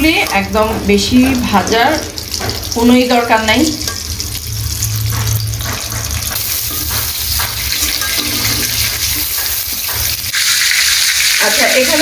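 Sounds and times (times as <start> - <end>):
prawns sizzling in hot oil: 0.0 - 12.0
spatula scraping a pan: 4.0 - 10.3.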